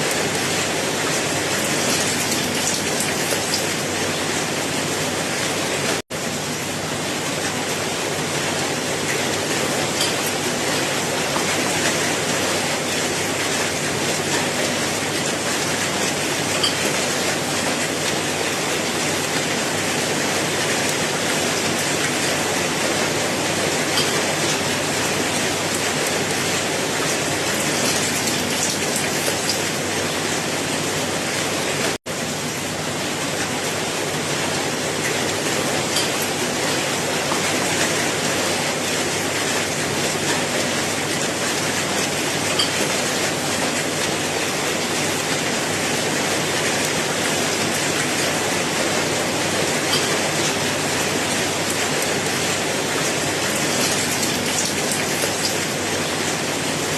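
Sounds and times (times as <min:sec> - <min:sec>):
individual raindrops: 0:00.0 - 0:04.6, 0:09.0 - 0:30.1, 0:45.3 - 0:56.6.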